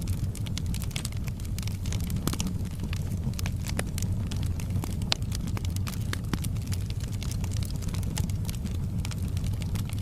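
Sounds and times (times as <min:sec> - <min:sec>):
logs burning and crackling: 0:00.0 - 0:10.0
low rumble of flame: 0:00.0 - 0:10.0.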